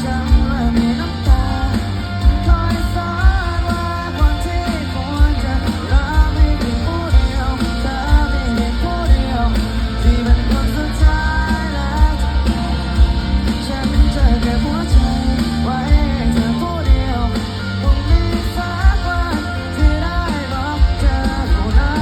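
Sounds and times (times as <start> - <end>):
drum beat: 0.0 - 22.0
guitars: 0.0 - 22.0
person singing: 0.0 - 22.0.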